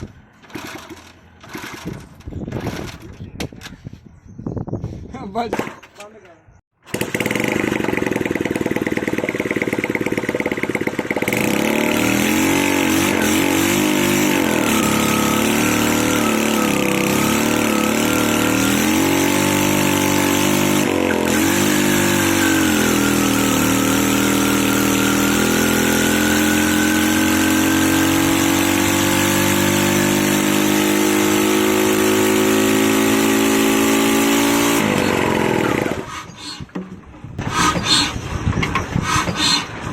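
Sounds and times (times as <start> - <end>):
engines running: 6.9 - 36.4.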